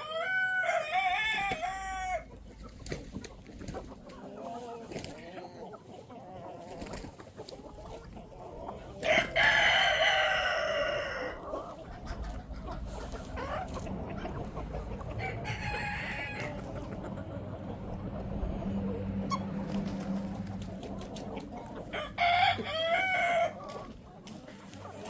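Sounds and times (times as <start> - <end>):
chickens clucking: 0.0 - 25.0
steady low rumble: 2.2 - 4.1, 11.3 - 22.2.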